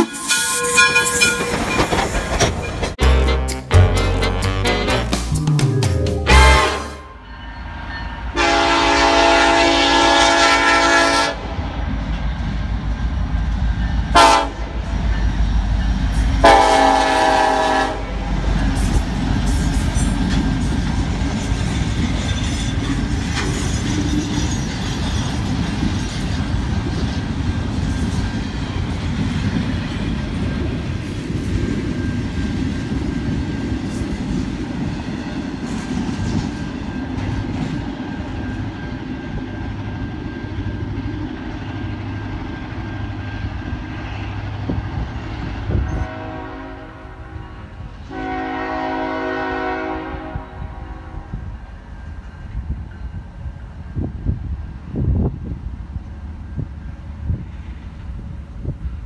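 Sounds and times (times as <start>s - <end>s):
train wheels clacking on rails: 0.0s - 3.0s, 18.2s - 44.1s
locomotive horn blasts: 3.0s - 5.3s, 6.2s - 7.4s, 8.3s - 11.5s, 14.1s - 14.8s, 16.4s - 18.3s, 45.7s - 51.4s.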